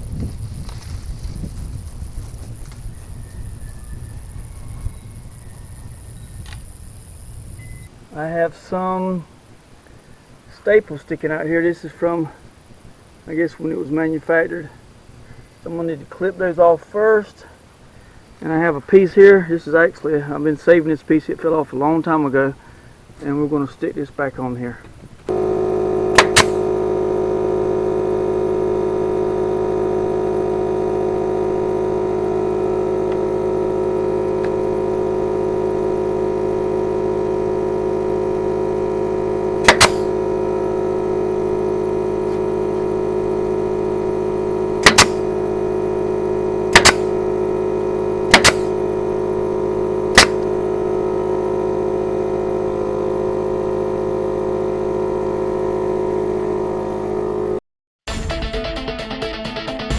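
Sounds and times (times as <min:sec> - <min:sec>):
steady motor hum: 0:00.0 - 0:09.0, 0:25.0 - 0:57.6
fastener gun shots: 0:26.1 - 0:26.7, 0:39.6 - 0:40.1, 0:44.8 - 0:45.3, 0:46.7 - 0:47.2, 0:48.3 - 0:48.8, 0:50.1 - 0:50.6.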